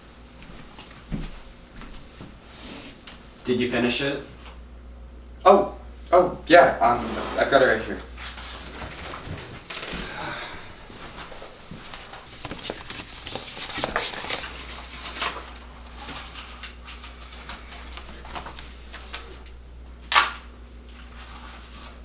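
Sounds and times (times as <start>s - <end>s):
objects being handled: 8.6s - 10.4s, 12.1s - 15.4s.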